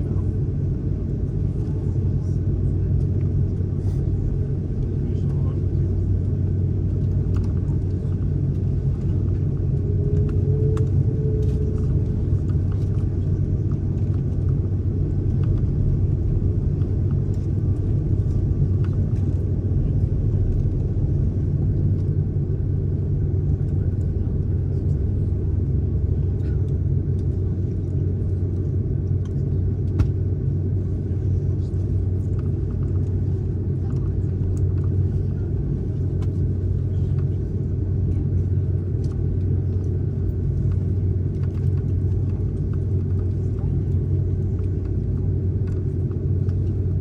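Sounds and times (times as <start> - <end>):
airliner cabin engine rumble: 0.0 - 47.0.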